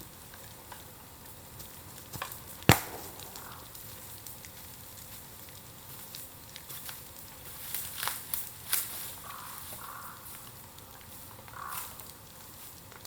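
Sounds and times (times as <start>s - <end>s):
bamboo popping in fire: 0.0s - 13.0s
bonfire crackling: 0.0s - 13.0s.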